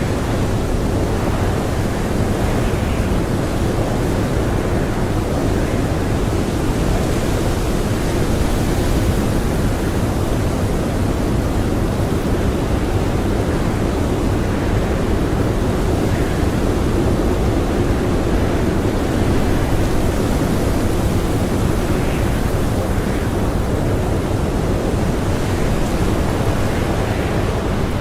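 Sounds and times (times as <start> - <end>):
blizzard wind blowing: 0.0 - 28.0.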